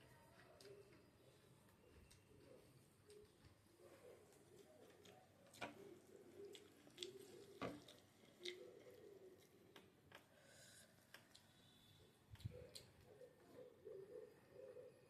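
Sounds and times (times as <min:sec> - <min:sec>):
chewing mouth sounds: 0:06.3 - 0:10.3
wet mouth clicks: 0:06.4 - 0:08.8, 0:12.4 - 0:13.0.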